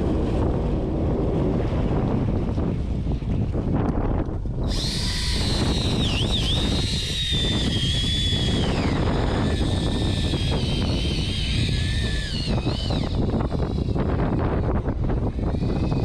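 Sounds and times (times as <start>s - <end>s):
boat engine rumble: 0.0s - 6.2s
high motor whine: 0.0s - 16.0s
wind on microphone: 0.0s - 16.0s.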